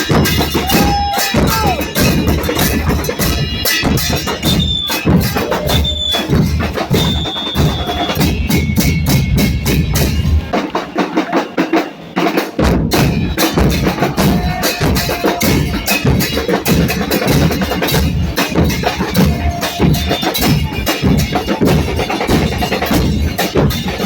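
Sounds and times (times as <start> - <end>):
bass drum beats: 0.0 - 11.2, 12.5 - 24.0.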